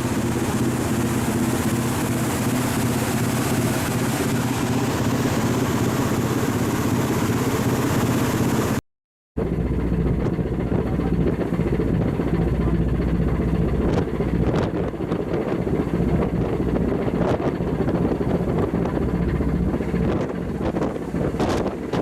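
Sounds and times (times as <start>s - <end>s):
ship diesel engine drone: 0.0s - 8.8s, 9.4s - 22.0s.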